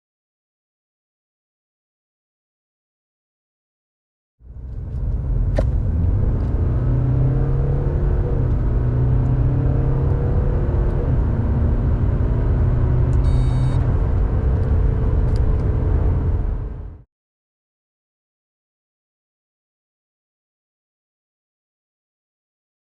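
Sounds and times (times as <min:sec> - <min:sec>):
car engine accelerating: 0:04.4 - 0:17.0
road noise: 0:04.4 - 0:17.0
high beep: 0:13.2 - 0:13.8.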